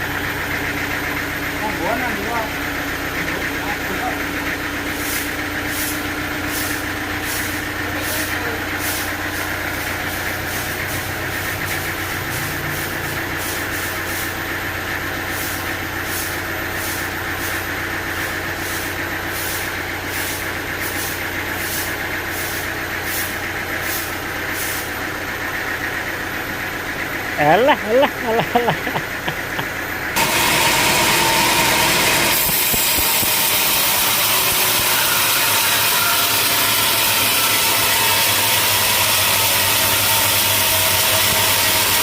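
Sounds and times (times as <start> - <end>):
sawmill engine hum: 0.0 - 42.0.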